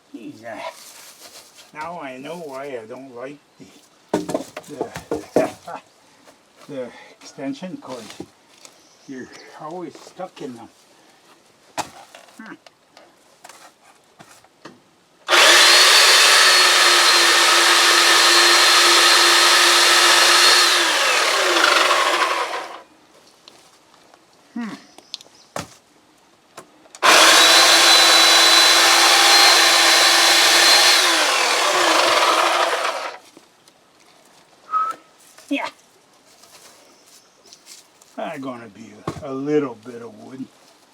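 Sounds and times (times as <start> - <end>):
electric chainsaw running: 15.3 - 22.8, 27.0 - 33.2.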